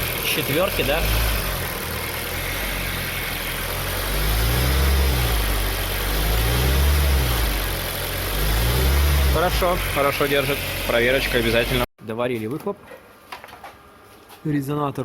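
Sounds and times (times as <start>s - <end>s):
car engine idling and revving: 0.0s - 11.9s.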